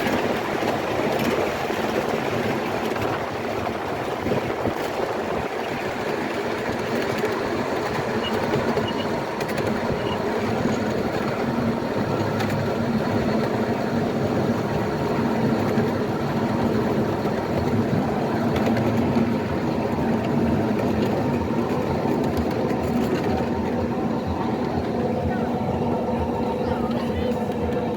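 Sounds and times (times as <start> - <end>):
train wheels rumbling on rails: 0.0 - 27.9
track clicks: 6.8 - 11.5.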